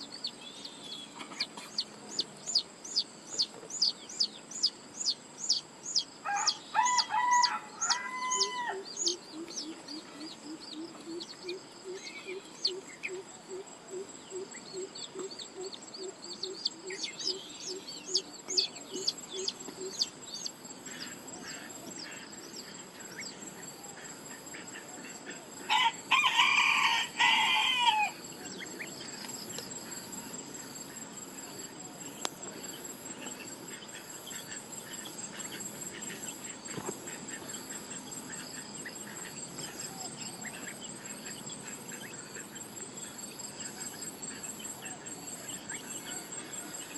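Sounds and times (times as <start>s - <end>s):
rooster crowing: 6.2s - 9.2s, 25.6s - 28.2s.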